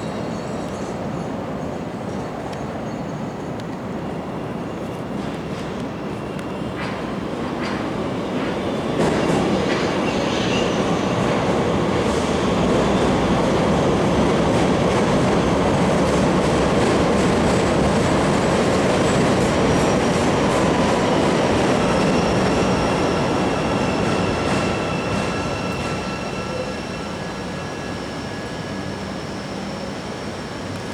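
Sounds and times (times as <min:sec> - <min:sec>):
train wheels rumbling on rail: 0:00.0 - 0:30.9
clicks of train wheels: 0:04.8 - 0:27.3
high wheel squeals: 0:19.6 - 0:30.9.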